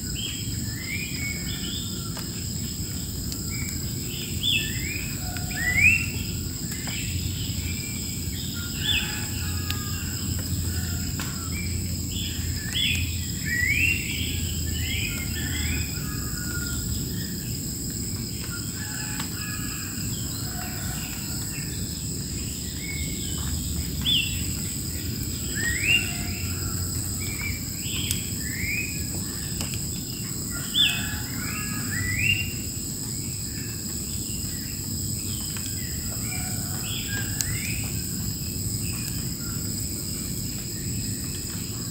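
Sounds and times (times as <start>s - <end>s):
birds chirping and whistling: 11.6s - 17.3s, 22.6s - 26.6s.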